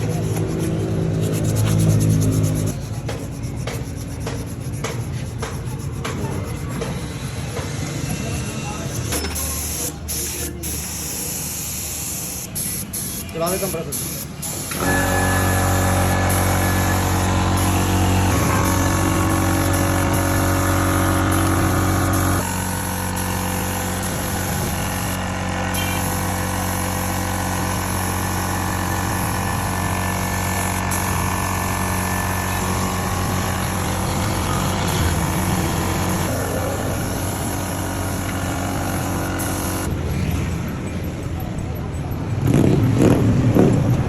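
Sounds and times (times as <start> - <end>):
air compressor running: 0.0 - 40.7.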